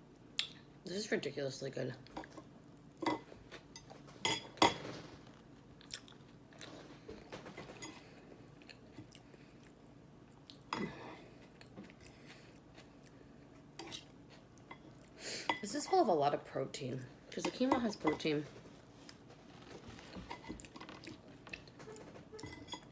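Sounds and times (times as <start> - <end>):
chewing and crunching salad: 5.8 - 6.8, 7.9 - 15.2, 20.0 - 21.8.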